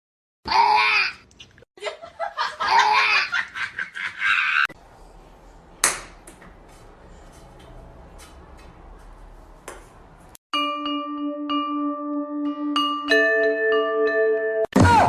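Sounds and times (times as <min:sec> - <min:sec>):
person laughing loudly: 0:01.8 - 0:04.7.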